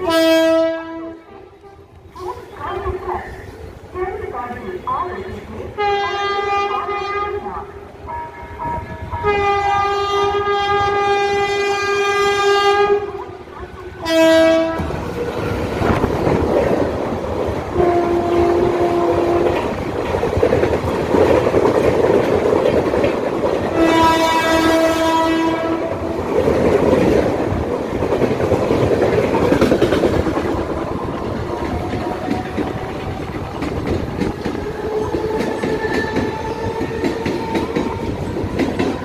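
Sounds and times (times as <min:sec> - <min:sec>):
train horn blasts: 0:00.0 - 0:01.9, 0:05.8 - 0:07.4, 0:08.1 - 0:13.2, 0:14.0 - 0:15.0, 0:17.8 - 0:19.6, 0:23.7 - 0:26.2
train coaches rumbling past: 0:00.0 - 0:39.0.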